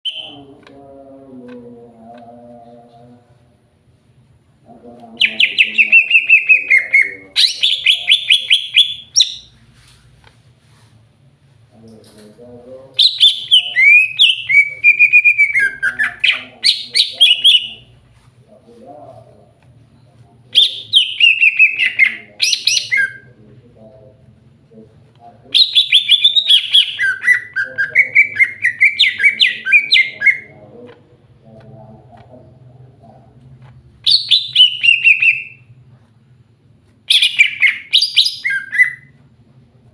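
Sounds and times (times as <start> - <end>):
bird singing repeated notes: 0.0 - 0.5, 5.2 - 9.6, 13.0 - 17.9, 20.5 - 23.4, 25.5 - 30.6, 34.0 - 35.7, 37.1 - 39.2
faint low hum: 0.1 - 39.9.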